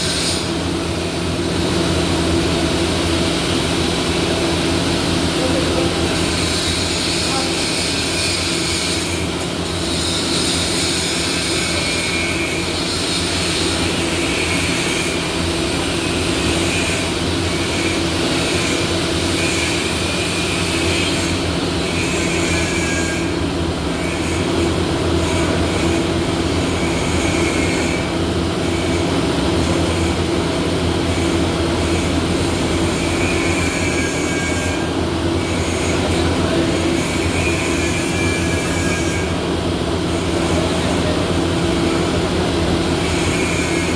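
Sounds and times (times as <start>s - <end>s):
welding machinery hum: 0.0s - 43.9s.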